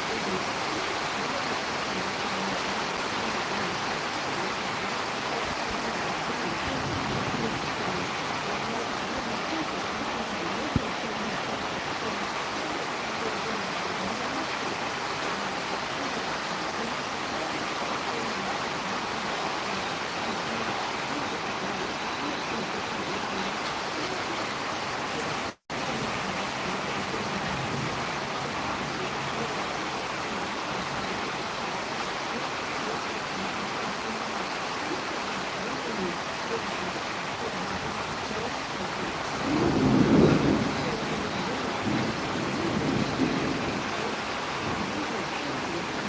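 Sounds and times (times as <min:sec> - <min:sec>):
storm wind rushing: 0:06.0 - 0:09.7.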